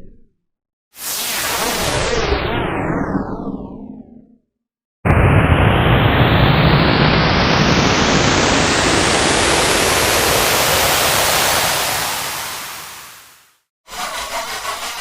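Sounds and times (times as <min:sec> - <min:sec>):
synthetic noise sweep: 0:01.0 - 0:03.9, 0:05.1 - 0:13.4.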